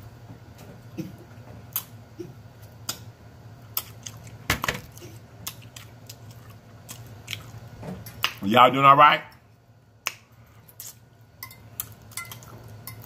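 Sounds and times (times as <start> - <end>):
person chewing with mouth smacks: 1.7 - 8.4, 10.0 - 11.0.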